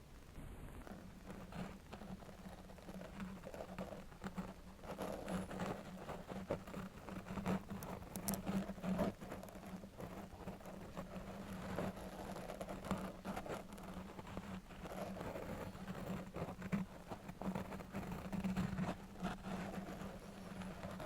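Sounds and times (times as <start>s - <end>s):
faint low hum: 0.0s - 21.0s
metal nail scratching and tapping: 7.4s - 8.6s.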